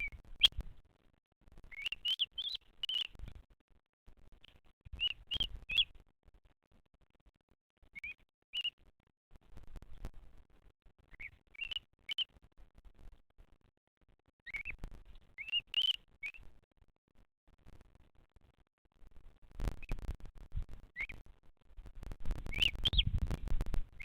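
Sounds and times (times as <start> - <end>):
bird chirping: 0.0 - 0.6, 1.6 - 3.3, 4.4 - 6.0, 7.9 - 8.8, 11.1 - 12.4, 14.4 - 16.5, 20.9 - 21.2, 22.4 - 23.2.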